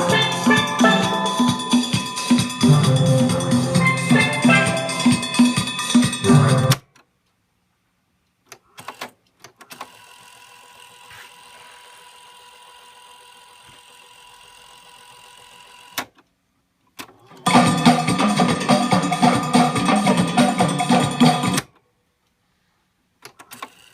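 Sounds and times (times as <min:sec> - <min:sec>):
music from record player: 0:00.0 - 0:06.8, 0:17.5 - 0:21.7.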